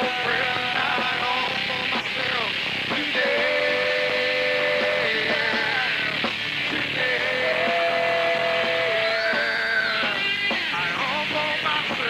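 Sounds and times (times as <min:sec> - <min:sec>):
drums: 0:00.0 - 0:12.0
rock band playing live: 0:00.0 - 0:12.0.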